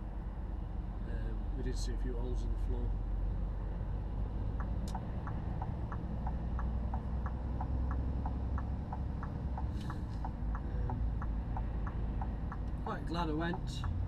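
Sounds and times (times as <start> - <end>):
engine and road rumble: 0.0 - 14.0
car indicator clicking: 4.6 - 12.8.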